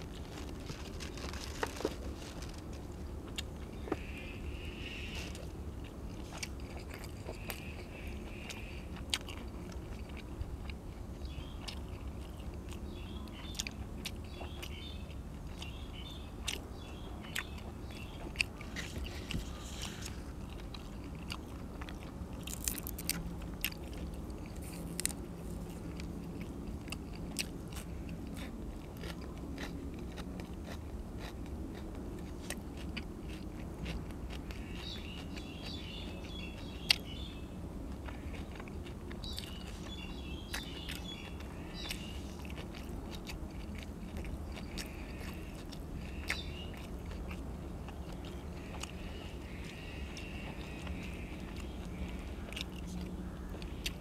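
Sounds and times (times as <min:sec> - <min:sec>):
crisp crunches: 0:00.0 - 0:04.1, 0:22.0 - 0:26.1
person chewing food: 0:00.0 - 0:54.0
steady low hum: 0:00.0 - 0:54.0.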